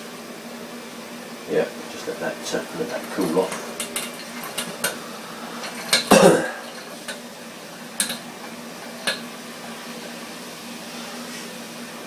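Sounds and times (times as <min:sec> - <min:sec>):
small metal containers clinking: 0:02.0 - 0:05.0, 0:05.6 - 0:07.2.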